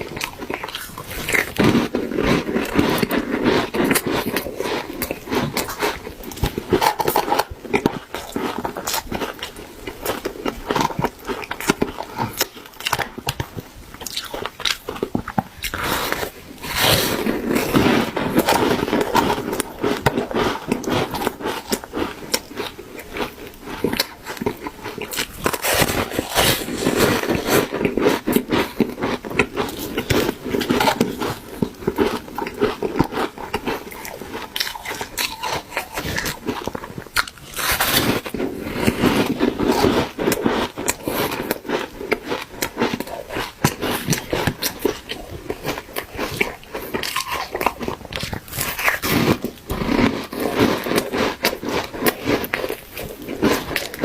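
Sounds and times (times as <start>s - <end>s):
person chewing crunchy ice: 0.0s - 54.0s.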